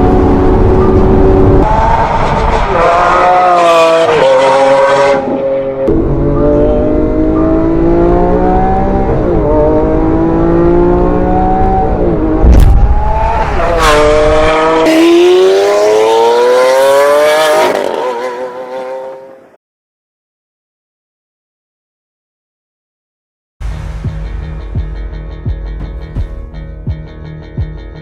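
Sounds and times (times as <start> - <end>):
sports car engine accelerating: 0.0 - 19.5.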